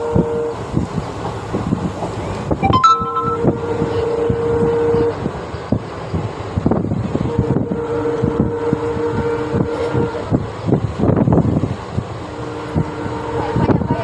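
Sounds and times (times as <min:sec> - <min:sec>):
train rushing wind and running noise: 0:00.0 - 0:14.0
steady low tone: 0:02.6 - 0:04.2.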